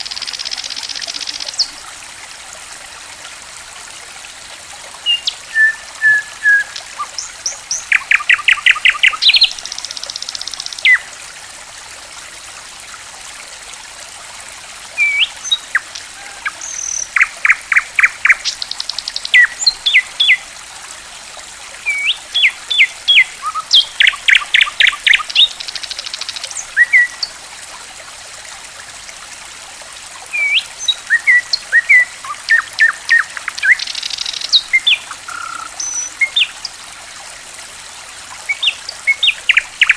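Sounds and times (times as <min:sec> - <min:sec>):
trickling water: 0:00.0 - 0:39.9
songbird whistles and trills: 0:05.0 - 0:11.1, 0:30.3 - 0:36.6.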